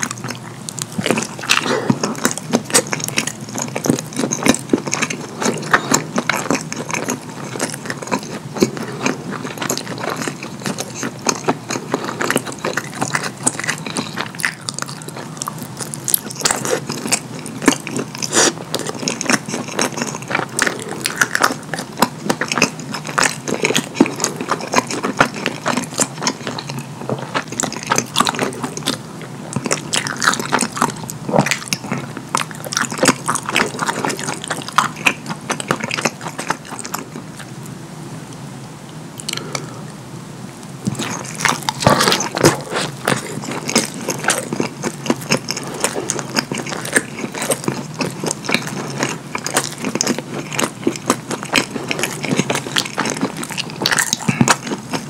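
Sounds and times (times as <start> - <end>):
wet chewing with mouth smacks: 40.9 - 55.0.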